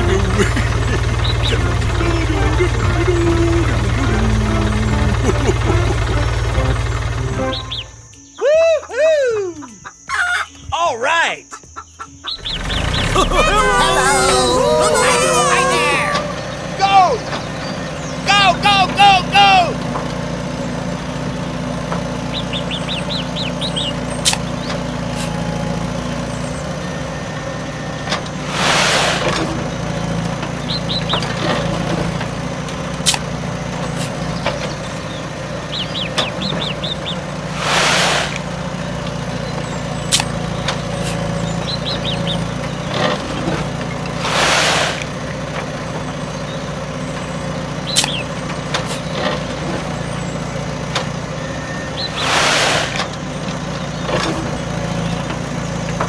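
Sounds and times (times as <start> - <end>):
birds chirping: 0.0 - 56.0
engine running: 0.0 - 56.0
short hisses: 25.1 - 25.5, 28.4 - 29.3, 33.9 - 34.3, 37.6 - 38.5, 41.0 - 41.4, 44.2 - 45.1, 52.2 - 53.0.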